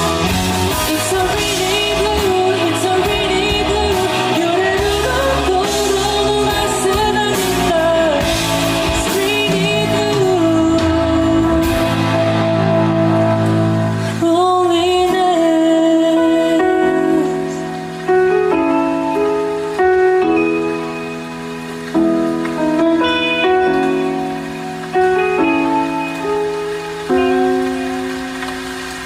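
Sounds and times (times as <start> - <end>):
person singing: 0.0 - 19.0
band playing pop-rock ballad: 0.0 - 29.0.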